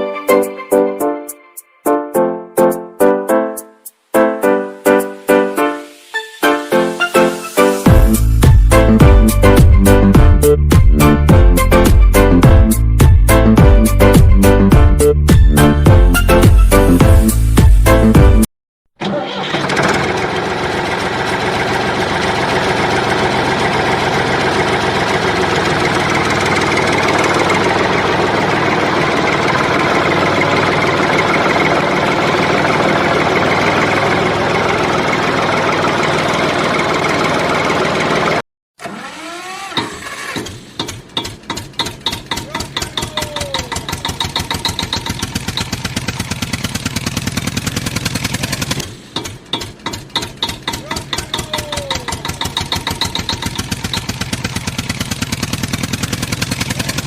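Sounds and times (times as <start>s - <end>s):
diesel engine chugging: 19.0s - 57.0s.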